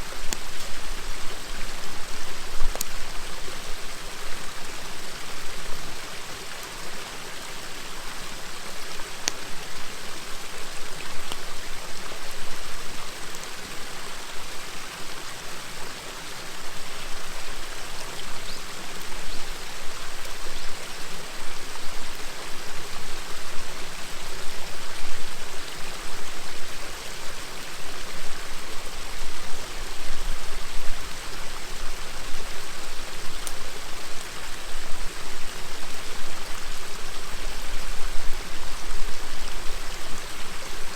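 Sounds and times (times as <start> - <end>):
campfire crackling: 33.3 - 34.6.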